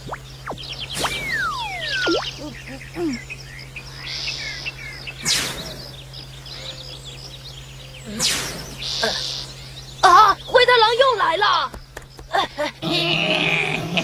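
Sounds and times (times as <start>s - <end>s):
swishing sound effect: 0.0s - 2.4s
birds chirping: 0.0s - 14.0s.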